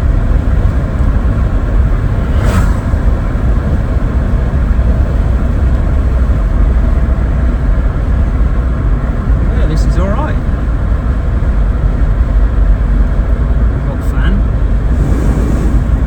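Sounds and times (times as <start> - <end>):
car engine and tyre rumble: 0.0 - 16.0
brief whoosh: 1.7 - 4.5.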